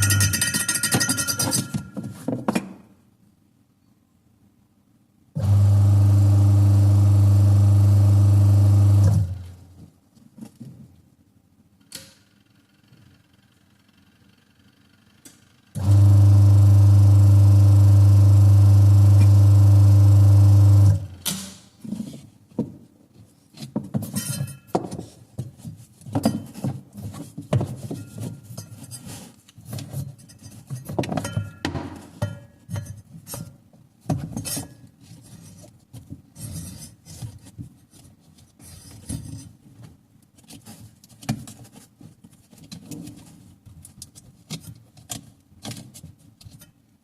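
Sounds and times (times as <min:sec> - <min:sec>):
metallic clinks and clatters: 0:00.0 - 0:02.2
washing machine motor humming: 0:05.4 - 0:09.6, 0:15.8 - 0:21.2.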